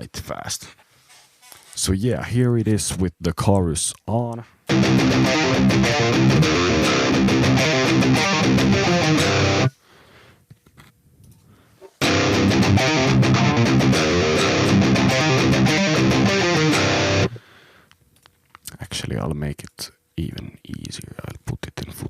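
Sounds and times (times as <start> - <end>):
electric guitar with chorus effect: 4.7 - 9.7, 12.0 - 17.4.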